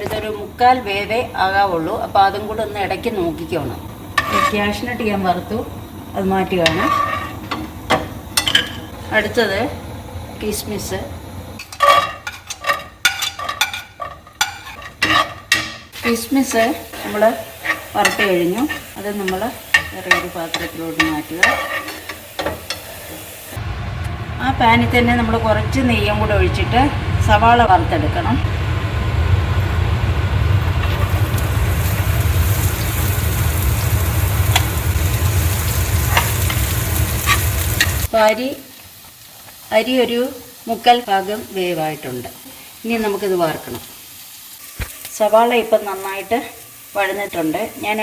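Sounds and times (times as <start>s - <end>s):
light sizzle: 0.0s - 48.0s
spatula scraping a pan: 4.1s - 5.1s, 6.6s - 8.9s, 11.6s - 23.3s, 35.4s - 38.1s
steady low hum: 23.6s - 38.1s.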